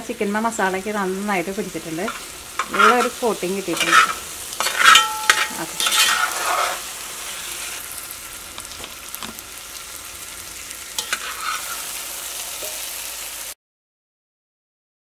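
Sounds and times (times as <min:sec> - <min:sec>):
chicken sizzling in pot: 0:00.0 - 0:13.6
metal spatula scraping pot: 0:01.6 - 0:07.8, 0:11.0 - 0:12.8.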